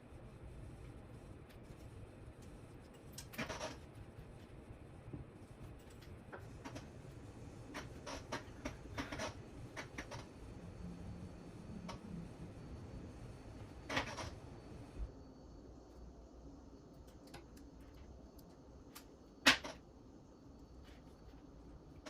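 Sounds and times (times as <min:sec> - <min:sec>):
small clicks of parts: 0:01.5 - 0:03.8, 0:16.9 - 0:19.8.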